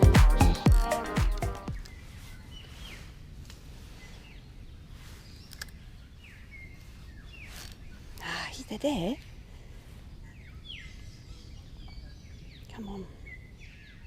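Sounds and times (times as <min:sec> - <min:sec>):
background music: 0:00.0 - 0:01.8
sweeping bird chirps: 0:00.0 - 0:03.2
low outdoor background noise: 0:00.0 - 0:14.0.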